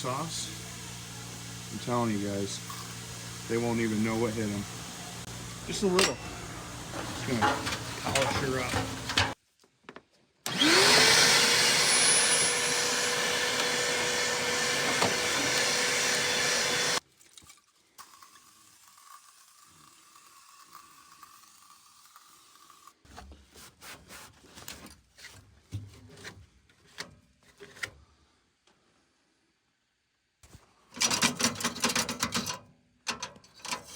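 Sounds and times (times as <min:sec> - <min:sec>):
electric polisher motor whine: 0:00.4 - 0:08.0, 0:10.5 - 0:17.0.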